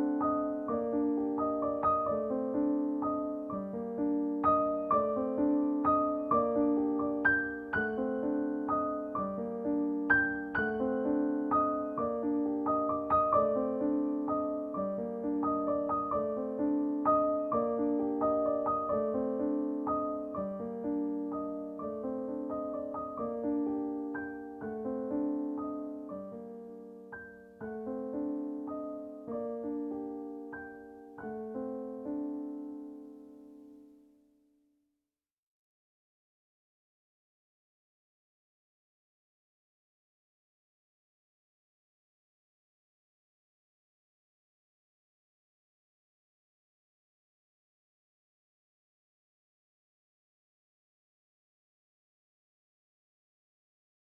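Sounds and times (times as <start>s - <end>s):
soft slow piano music: 0.0s - 34.3s.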